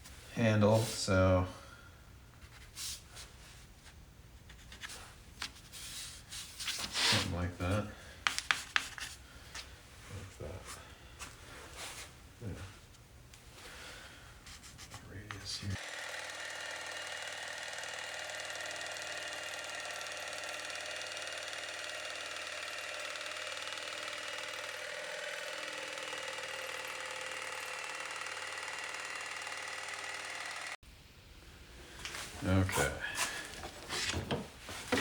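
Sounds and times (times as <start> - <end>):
power saw cutting wood: 15.3 - 30.8, 32.6 - 35.0.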